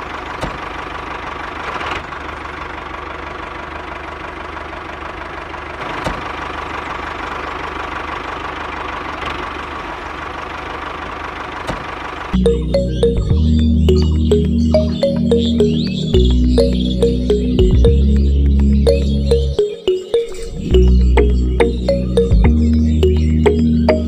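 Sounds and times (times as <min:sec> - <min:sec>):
music: 0:12.4 - 0:24.0.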